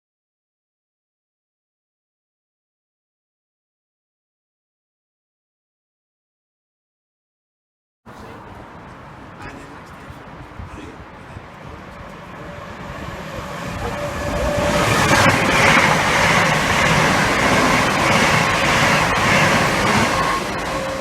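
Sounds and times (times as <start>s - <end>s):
train moving along tracks: 8.1s - 21.0s.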